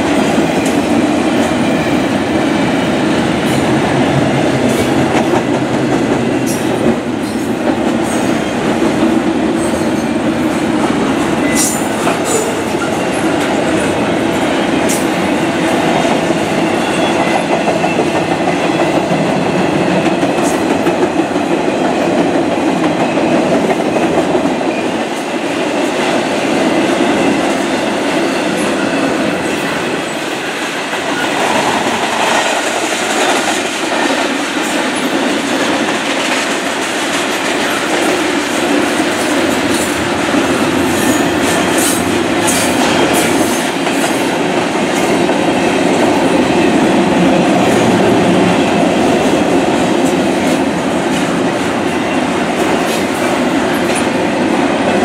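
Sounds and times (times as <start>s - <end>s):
steel wheels rolling on rail: 0.0s - 55.0s.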